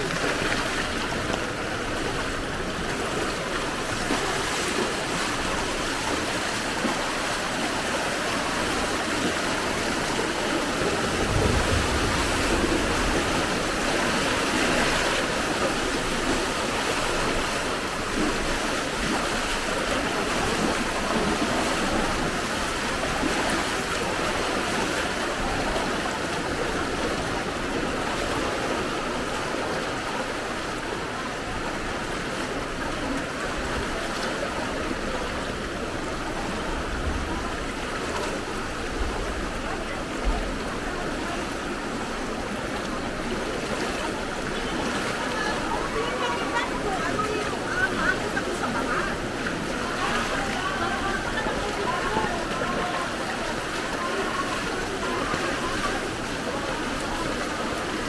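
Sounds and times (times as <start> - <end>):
floodwater rushing: 0.0 - 58.0
low rumble: 11.1 - 13.8.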